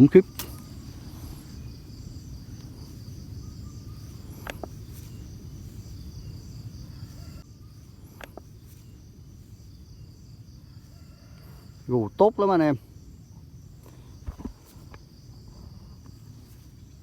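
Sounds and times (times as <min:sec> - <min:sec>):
crickets chirring: 0:00.0 - 0:17.0
sharp clicks: 0:00.3 - 0:00.7.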